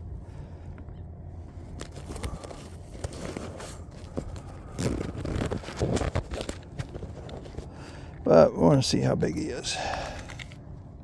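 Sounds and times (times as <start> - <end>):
fish handling clicks and scrapes: 9.9 - 10.6.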